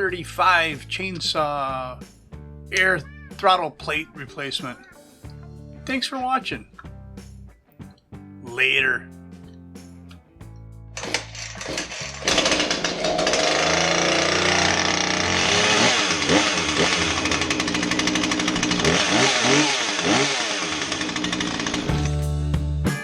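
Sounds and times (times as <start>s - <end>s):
chainsaw engine revving: 11.0s - 22.2s.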